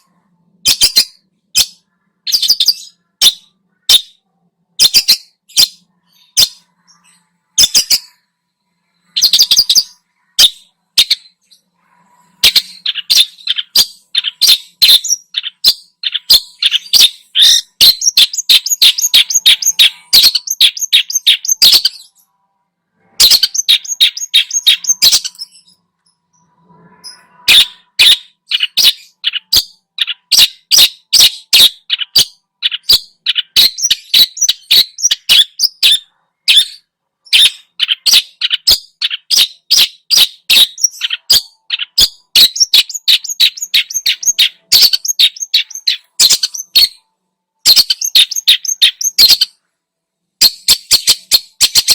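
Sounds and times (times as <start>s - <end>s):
shrike singing: 0.0s - 36.0s.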